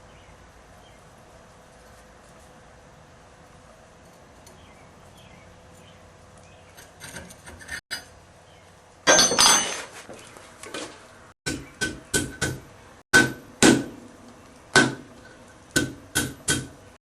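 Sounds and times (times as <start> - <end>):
metal clang on anvil: 9.1 - 9.9.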